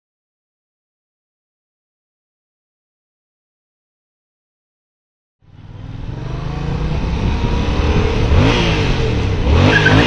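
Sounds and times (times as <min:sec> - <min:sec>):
motorcycle engine accelerating: 0:05.4 - 0:10.0
wind and road noise: 0:05.4 - 0:10.0.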